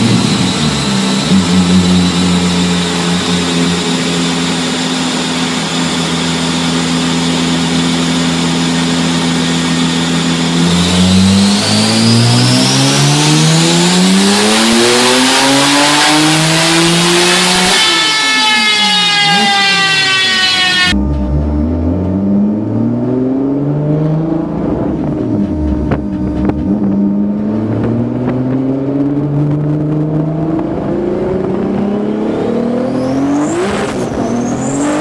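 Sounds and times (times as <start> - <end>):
engine revving: 0.0 - 35.0
turbo whistle: 17.3 - 21.0.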